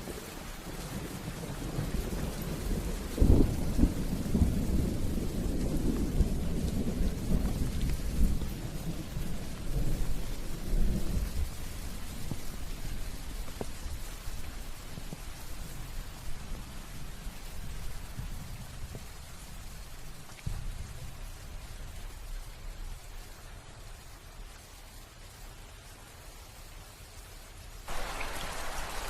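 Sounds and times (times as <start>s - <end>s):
steady rain: 0.0s - 29.0s
thunder rumbling: 0.7s - 22.6s.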